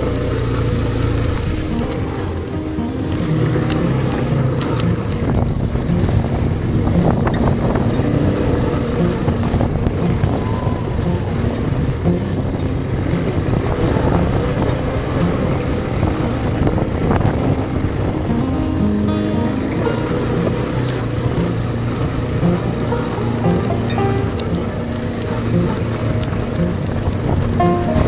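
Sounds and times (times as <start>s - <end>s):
quad bike engine running: 0.0s - 28.0s.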